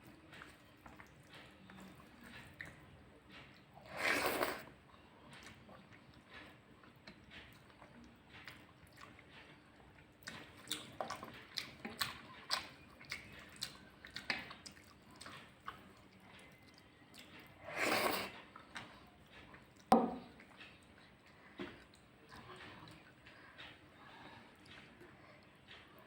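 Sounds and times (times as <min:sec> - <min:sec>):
wet chewing and lip smacks: 0:05.3 - 0:23.7.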